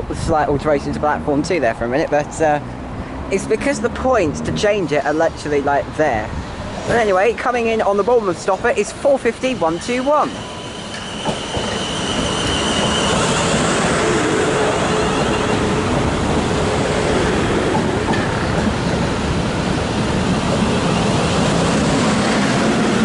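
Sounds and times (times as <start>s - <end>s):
train rushing noise: 0.0s - 23.0s.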